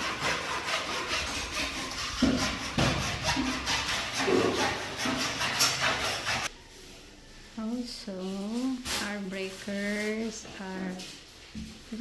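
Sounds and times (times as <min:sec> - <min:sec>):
hand saw cutting: 0:00.0 - 0:06.5.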